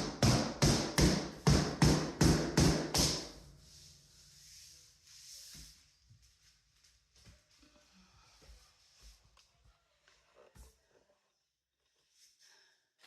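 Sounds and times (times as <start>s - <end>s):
rapid sharp knocks: 0.0s - 3.3s.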